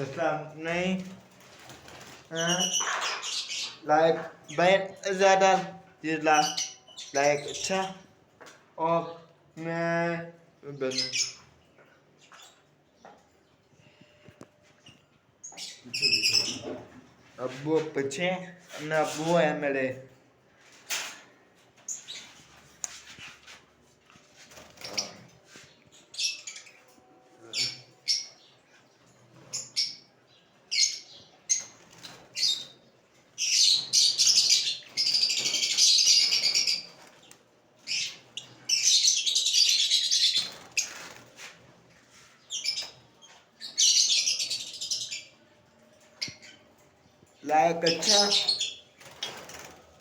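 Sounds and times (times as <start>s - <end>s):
many birds screeching: 0.0s - 8.0s, 15.6s - 16.9s, 33.4s - 41.6s, 42.2s - 45.4s, 47.4s - 49.8s.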